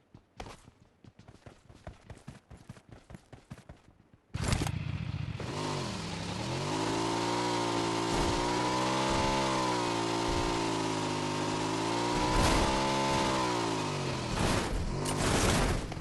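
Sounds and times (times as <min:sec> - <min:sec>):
motorcycle engine starting and revving: 0:04.4 - 0:16.0.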